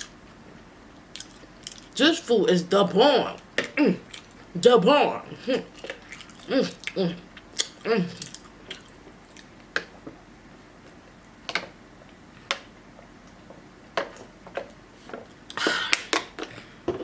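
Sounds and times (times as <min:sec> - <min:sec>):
wet mouth clicks while chewing: 0:01.1 - 0:01.9, 0:05.8 - 0:09.9.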